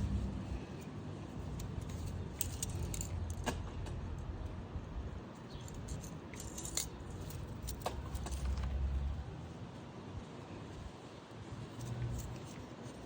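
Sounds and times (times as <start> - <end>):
low steady hum: 0.0 - 13.0
small metal tools clinking: 0.8 - 3.5, 5.5 - 8.8.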